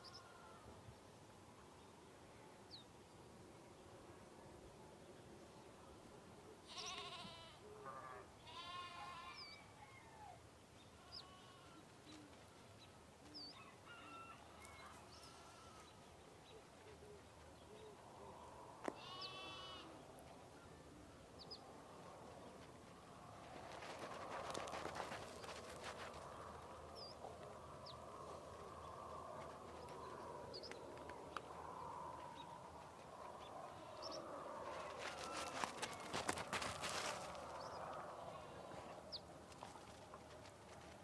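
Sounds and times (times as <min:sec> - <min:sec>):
goats or sheep bleating: 0:06.7 - 0:07.6, 0:08.4 - 0:09.5, 0:11.0 - 0:11.9, 0:15.2 - 0:15.9, 0:18.9 - 0:19.9, 0:35.1 - 0:36.1.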